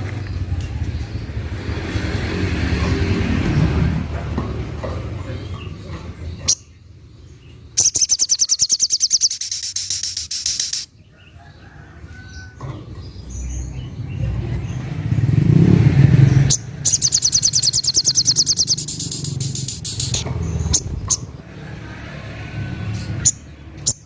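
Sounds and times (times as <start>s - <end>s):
low engine rumble: 0.0s - 10.9s, 11.5s - 23.9s
bird high-pitched trill: 7.8s - 10.9s, 16.5s - 21.2s.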